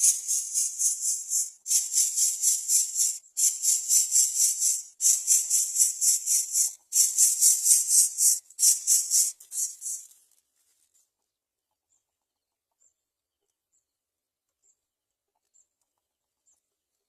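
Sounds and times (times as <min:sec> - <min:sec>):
faint high-pitched bird chirps: 0:00.0 - 0:10.1
rhythmic shaker music beat: 0:00.0 - 0:10.2.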